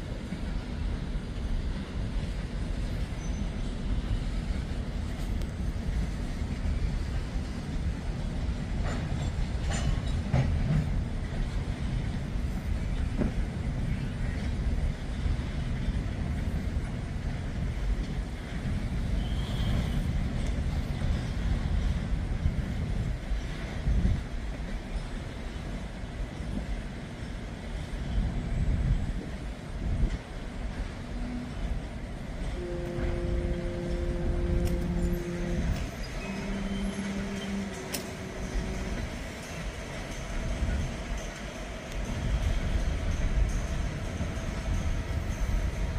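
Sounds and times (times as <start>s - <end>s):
train wheels rumbling on rails: 0.0s - 45.9s
freight cars rumbling: 28.1s - 45.9s
held steady tones: 32.6s - 40.3s
wheel squeal: 34.8s - 39.0s.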